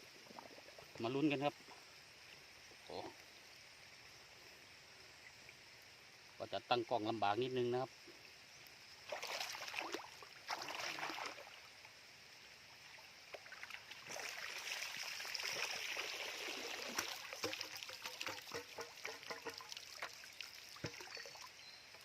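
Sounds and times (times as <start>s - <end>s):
shallow water splashing: 9.0s - 11.8s, 13.4s - 22.0s
water dripping: 13.3s - 22.0s.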